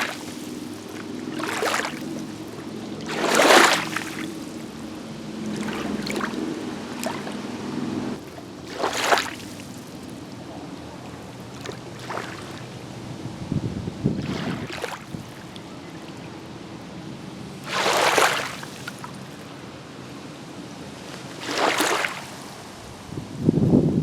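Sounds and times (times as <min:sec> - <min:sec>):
small waves splashing on shore: 0:00.0 - 0:13.4, 0:14.0 - 0:23.1.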